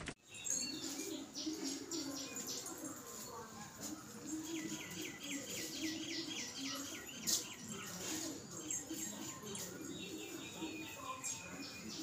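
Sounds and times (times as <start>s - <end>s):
small bird chirping: 0.2s - 3.3s.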